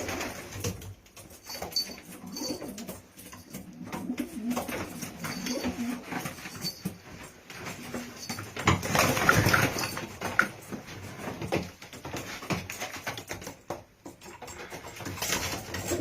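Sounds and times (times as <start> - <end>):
pigeons scuffling and clattering: 0.0 - 16.0
pigeons cooing: 3.7 - 6.1.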